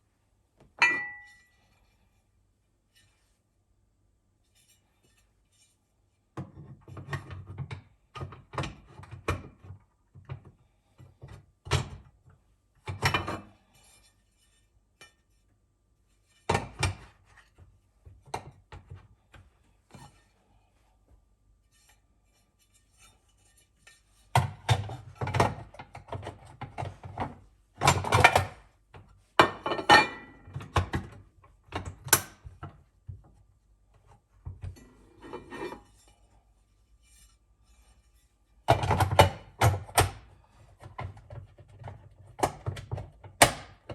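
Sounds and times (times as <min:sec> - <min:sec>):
dishes and utensils set down on counter: 0:00.8 - 0:01.5, 0:29.4 - 0:31.1.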